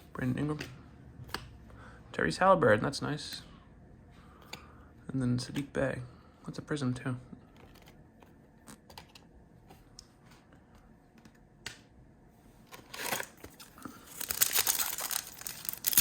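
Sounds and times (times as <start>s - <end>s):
foil wrapper tearing and crinkling: 12.9s - 16.0s.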